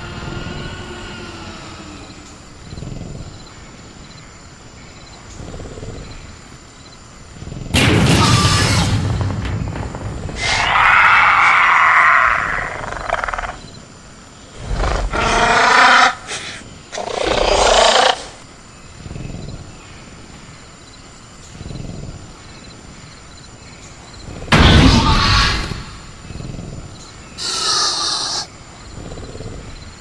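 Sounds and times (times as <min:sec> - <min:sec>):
dinosaur screeching and roaring: 0:00.0 - 0:02.6, 0:07.8 - 0:13.7, 0:14.6 - 0:18.4, 0:24.5 - 0:26.2, 0:27.4 - 0:28.5.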